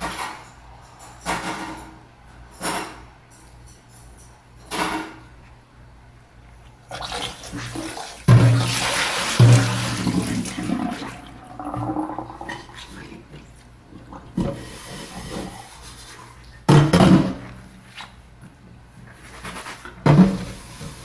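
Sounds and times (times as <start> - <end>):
tap water running: 6.7 - 17.9, 18.7 - 21.0.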